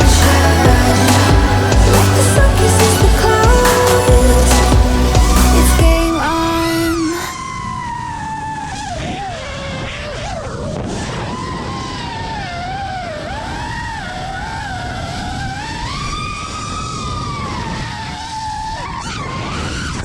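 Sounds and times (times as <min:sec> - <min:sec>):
low rushing noise: 0:00.0 - 0:06.8.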